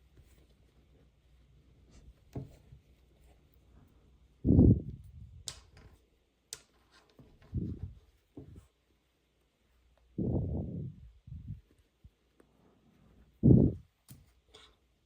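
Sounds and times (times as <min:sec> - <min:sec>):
soft handling bumps: 0:07.1 - 0:08.8.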